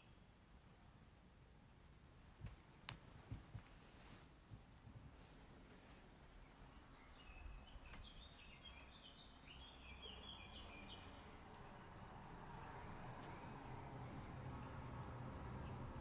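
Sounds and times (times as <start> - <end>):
faint bird chirping: 0.0 - 0.4, 5.8 - 16.0.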